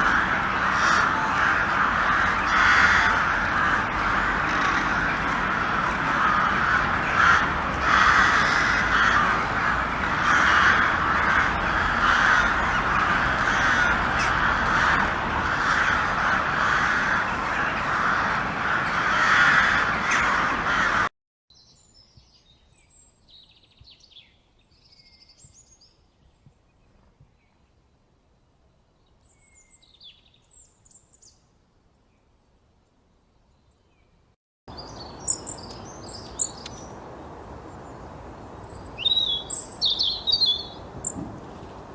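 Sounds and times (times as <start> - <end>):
crows cawing: 0.0 - 21.1.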